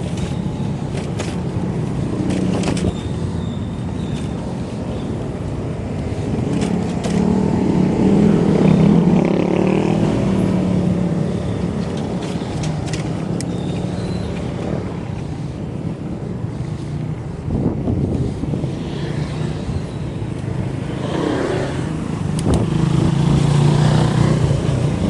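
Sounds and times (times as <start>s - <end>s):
road and wind noise: 0.0s - 25.0s
sharp clicks: 22.3s - 22.7s.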